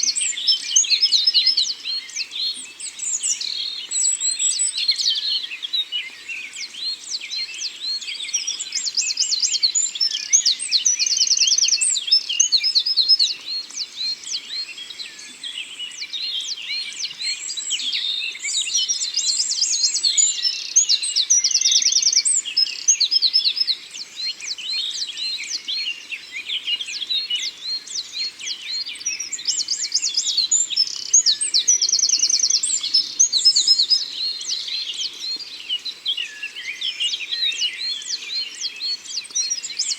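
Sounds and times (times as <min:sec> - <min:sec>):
songbirds chirping and whistling: 0:00.0 - 0:39.9.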